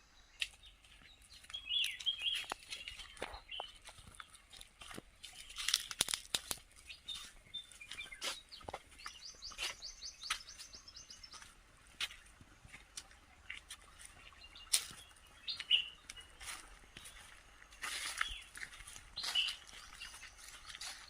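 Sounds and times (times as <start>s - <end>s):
birds chirping: 0.0s - 21.0s
crunching and crackling: 0.4s - 10.6s, 11.4s - 21.0s
bird trill: 14.3s - 17.3s, 19.2s - 21.0s.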